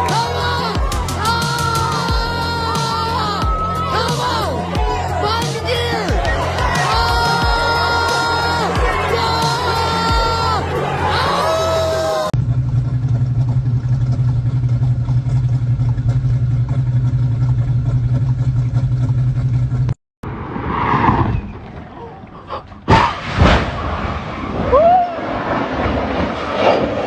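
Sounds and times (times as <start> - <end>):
car engine running: 0.0 - 11.4, 12.2 - 20.0.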